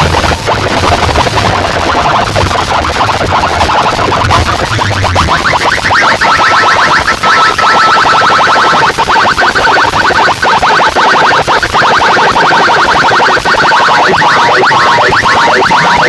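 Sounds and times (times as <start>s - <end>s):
electronic chirp tones: 11.1s - 16.0s
steady high tone: 11.8s - 16.0s.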